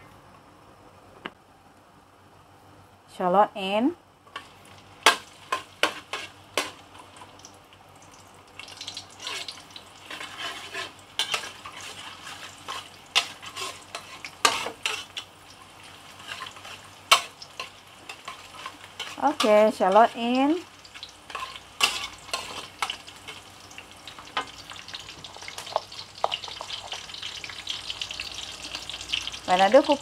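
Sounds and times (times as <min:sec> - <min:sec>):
shallots sizzling in oil: 0:04.3 - 0:30.0
metal spatula scraping a wok: 0:05.1 - 0:06.8, 0:09.2 - 0:15.3, 0:16.1 - 0:19.6, 0:21.0 - 0:23.4.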